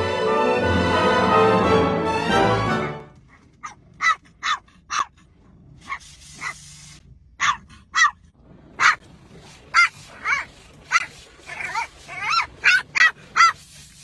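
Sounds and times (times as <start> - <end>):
dog barking: 3.6 - 5.1, 7.4 - 8.2, 8.8 - 9.0, 9.7 - 13.6.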